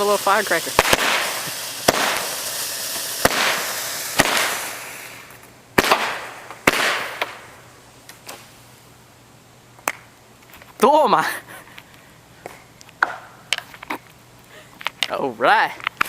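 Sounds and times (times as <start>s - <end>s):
firework cracks: 0.0s - 8.6s, 9.8s - 10.3s
firework spraying hiss: 0.0s - 8.8s.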